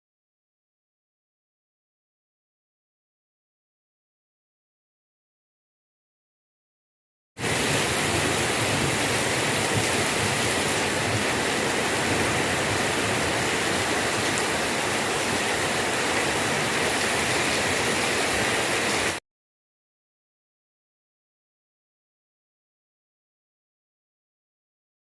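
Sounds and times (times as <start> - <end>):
heavy rain pouring: 7.4 - 19.2.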